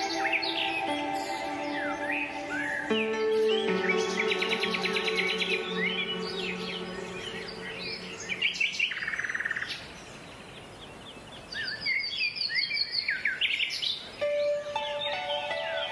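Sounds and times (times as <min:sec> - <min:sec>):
background music: 0:00.0 - 0:09.6, 0:14.2 - 0:15.9
songbirds chirping: 0:00.0 - 0:15.9.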